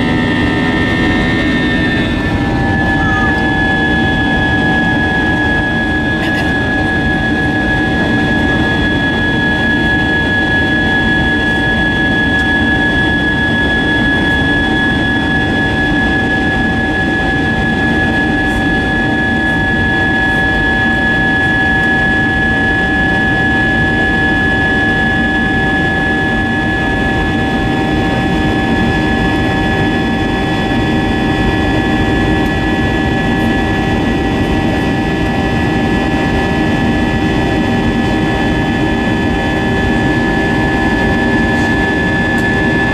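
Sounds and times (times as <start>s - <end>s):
high engine whine: 0.0s - 42.9s
jet engines in aircraft cabin: 0.0s - 42.9s.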